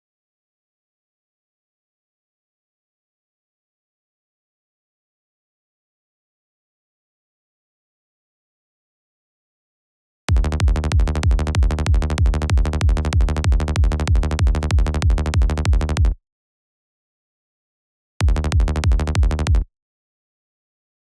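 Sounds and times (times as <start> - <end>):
electronic kick drum and synth bass: 10.3 - 16.2, 18.2 - 19.7.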